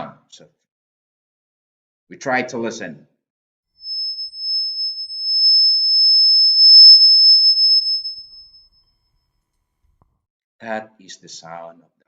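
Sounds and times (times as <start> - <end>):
high-pitched pure tone: 3.8 - 8.5.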